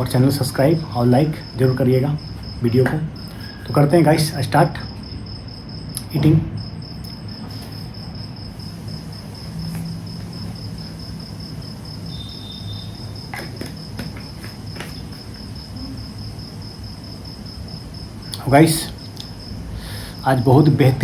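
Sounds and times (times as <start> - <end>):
insect trilling: 0.0 - 21.0
sharp clicks of eating: 18.3 - 19.4.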